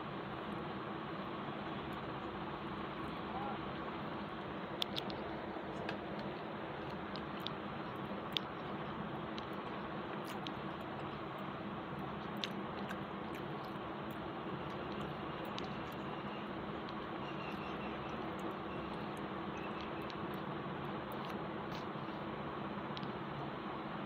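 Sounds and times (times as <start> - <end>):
steady background hiss: 0.0 - 24.0
sharp mouth clicks: 4.4 - 16.2, 21.1 - 22.0
person chewing: 4.6 - 21.9.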